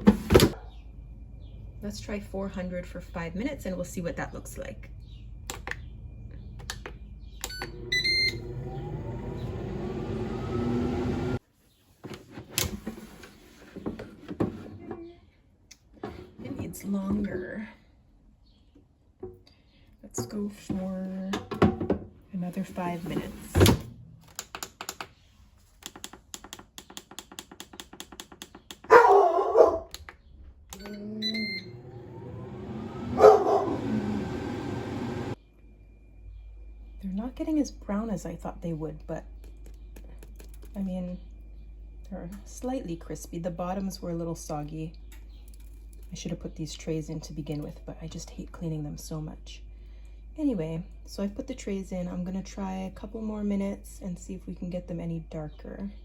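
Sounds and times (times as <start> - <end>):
air fryer fan whine: 0.0 - 11.4, 31.3 - 35.4
control panel beeping: 7.4 - 8.4.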